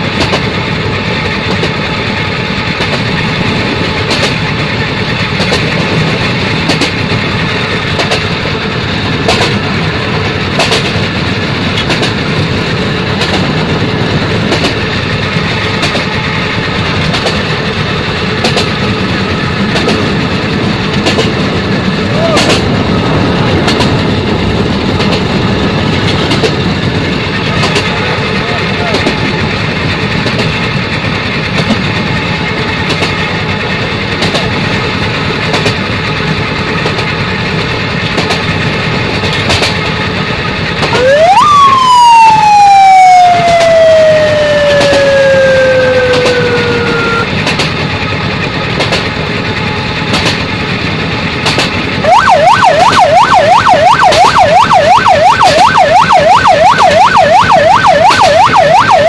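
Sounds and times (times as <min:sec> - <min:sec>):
siren wailing and yelping: 0:40.9 - 0:47.3, 0:52.0 - 0:59.0.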